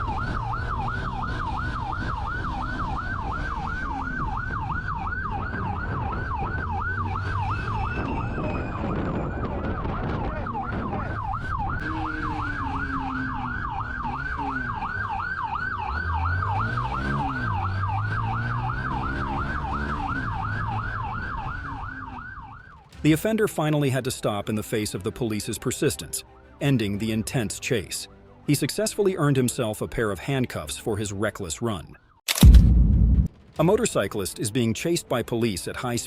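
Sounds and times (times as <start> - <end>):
police siren yelping: 0.0 - 22.9
engine and road noise: 0.0 - 36.0.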